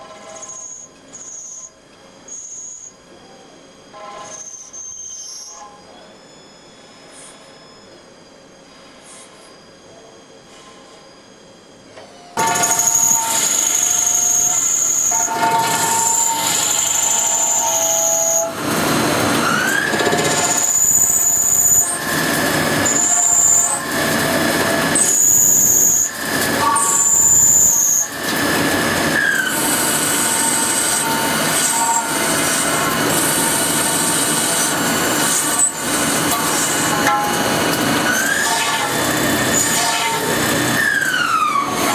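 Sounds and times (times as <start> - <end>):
high whining cutting tones: 11.2 - 41.9
motor whine: 11.2 - 41.9
lathe machine noise: 12.4 - 41.9.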